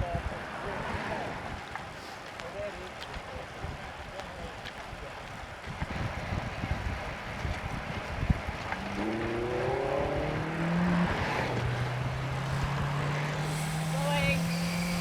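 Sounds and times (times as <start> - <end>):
wind buffeting microphone: 2.9 - 15.0
vehicle engine accelerating: 8.2 - 15.0.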